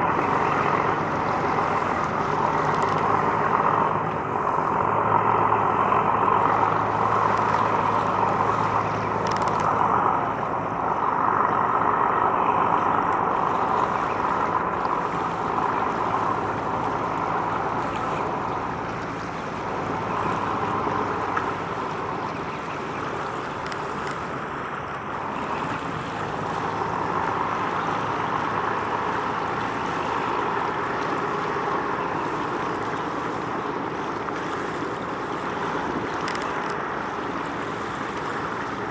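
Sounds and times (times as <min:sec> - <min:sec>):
marine engine humming: 0:00.0 - 0:38.9
rushing water: 0:00.0 - 0:38.9
wind: 0:00.0 - 0:38.9.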